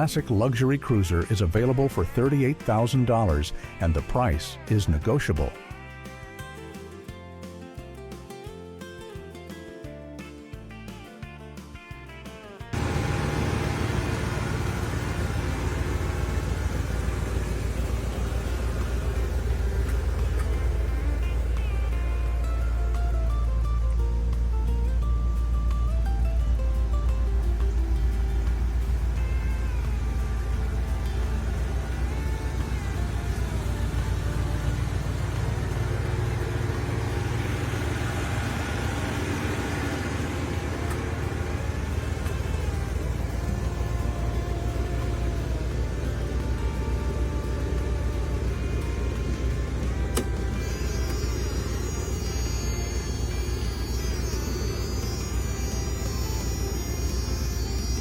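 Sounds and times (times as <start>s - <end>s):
car engine idling: 12.7s - 58.0s.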